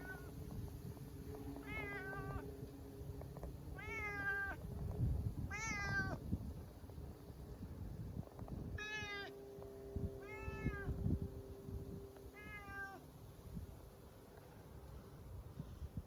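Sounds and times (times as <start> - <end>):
cat meowing: 0.0 - 0.3, 1.6 - 2.4, 3.8 - 4.6, 5.5 - 6.2, 8.8 - 9.3, 10.2 - 10.9, 12.3 - 13.0.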